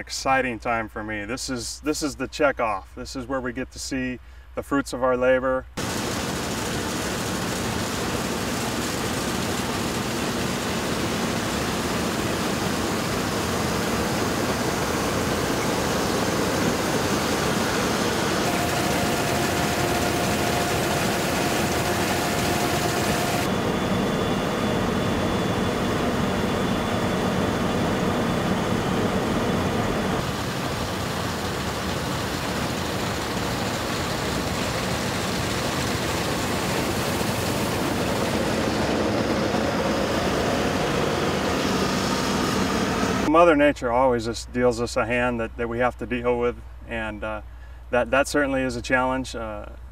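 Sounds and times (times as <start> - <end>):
combine harvester drone: 5.8 - 43.4.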